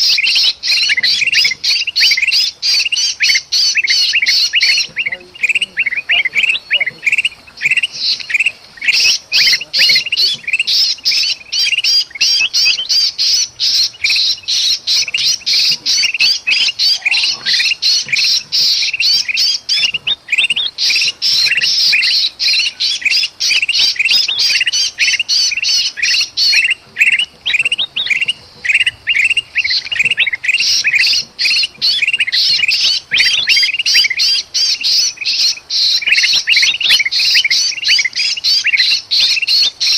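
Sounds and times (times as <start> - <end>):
bird distress calls: 0.0 - 39.9
birds chirping and squawking: 0.0 - 39.9.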